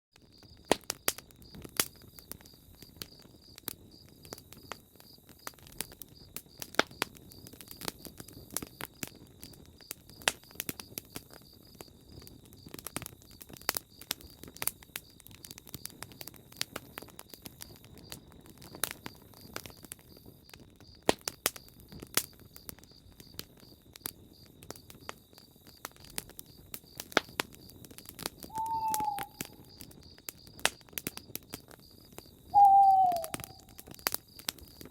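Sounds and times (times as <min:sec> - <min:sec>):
campfire crackling and popping: 0:00.2 - 0:34.9
steady high chirring: 0:28.5 - 0:29.4
owl hoot: 0:28.5 - 0:29.6, 0:32.6 - 0:33.6.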